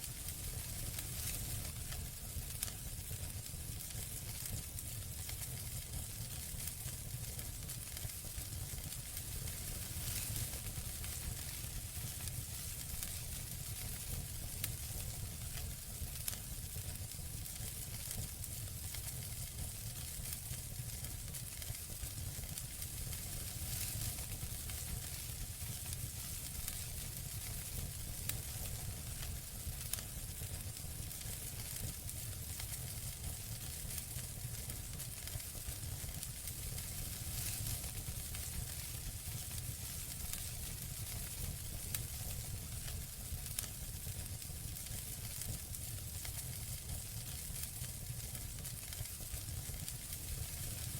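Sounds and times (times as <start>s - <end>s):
low rumble of flames: 0.0s - 50.9s
soft hiss of fire: 0.0s - 50.9s
campfire crackling and popping: 3.8s - 50.9s.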